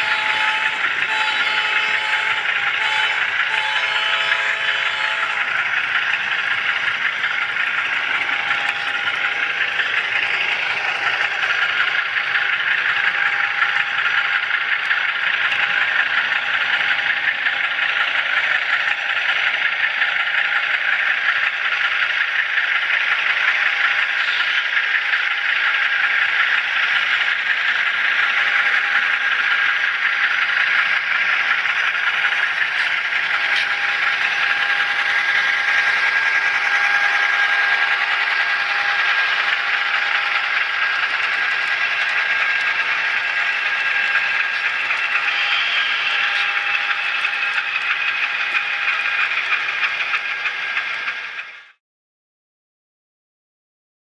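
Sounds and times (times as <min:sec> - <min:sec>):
small wheels rattling on rail: 0:00.0 - 0:51.8
thin whine: 0:28.2 - 0:51.5.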